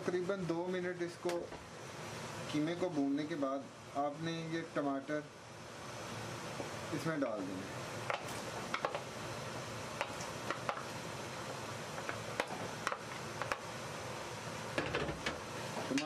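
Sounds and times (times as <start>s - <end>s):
meat sizzling in a pot: 5.7s - 16.0s.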